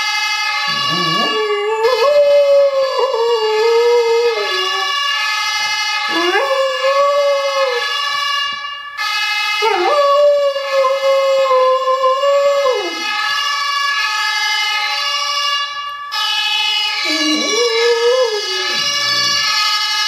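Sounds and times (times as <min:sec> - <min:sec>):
siren from phone speaker: 0:00.0 - 0:20.0
dog howling: 0:00.7 - 0:05.0, 0:06.1 - 0:07.9, 0:09.6 - 0:13.0, 0:17.0 - 0:19.5.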